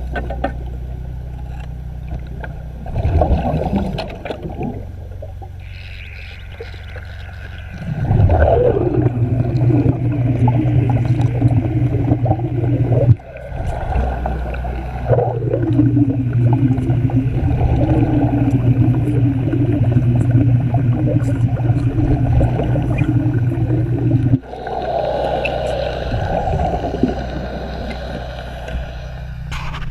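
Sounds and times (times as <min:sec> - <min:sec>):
crackling and gurgling bubbles: 0:00.0 - 0:29.9
welding arc buzzing hum: 0:04.0 - 0:29.9.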